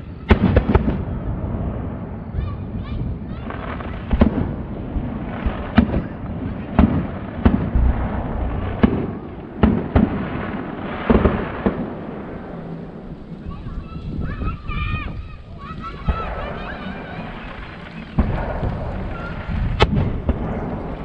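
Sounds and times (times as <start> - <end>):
firework crackling: 0.0 - 21.0
firework shells bursting: 6.8 - 12.0.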